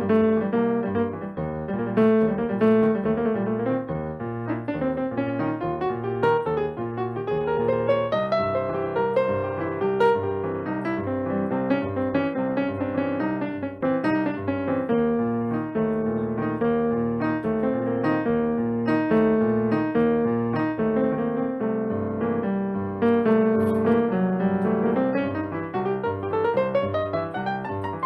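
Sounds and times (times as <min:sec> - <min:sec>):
piano playing: 0:00.0 - 0:28.0.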